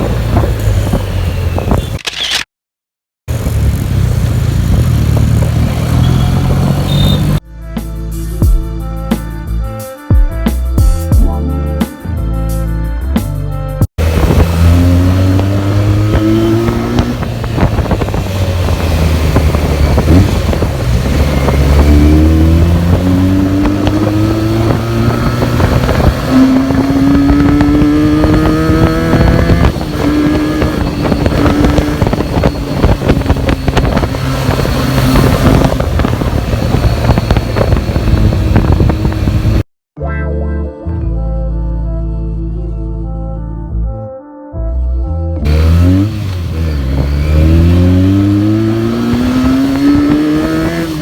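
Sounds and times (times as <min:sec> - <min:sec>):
motorcycle engine revving: 0:03.3 - 0:07.4, 0:14.0 - 0:39.7, 0:45.4 - 0:51.0
wind on microphone: 0:14.0 - 0:39.6.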